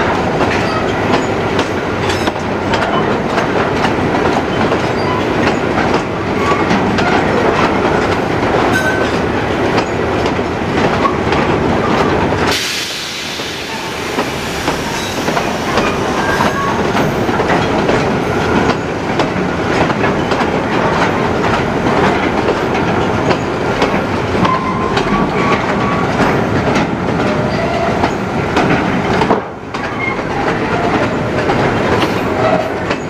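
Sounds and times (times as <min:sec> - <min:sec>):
wheels clacking over rail joints: 0:00.0 - 0:12.6, 0:14.1 - 0:33.0
steel wheels rumbling on rail: 0:00.0 - 0:33.0
short wheel squeaks: 0:04.5 - 0:05.4, 0:06.4 - 0:07.3, 0:14.9 - 0:16.9, 0:29.8 - 0:30.5.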